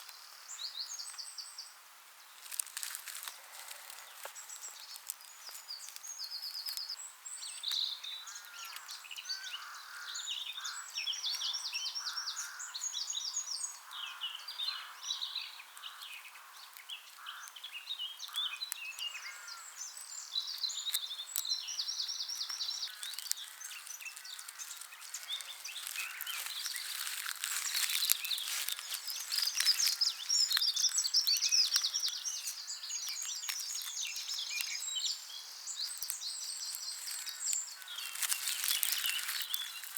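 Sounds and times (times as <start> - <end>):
songbirds singing: 0.0 - 39.9
close crackling and rustling: 2.4 - 7.0, 18.3 - 39.9.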